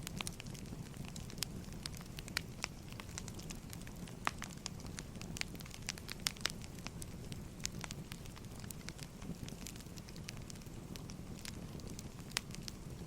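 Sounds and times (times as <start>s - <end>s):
firewood crackling and popping: 0.0s - 13.0s
low rumble of fire: 0.0s - 13.0s.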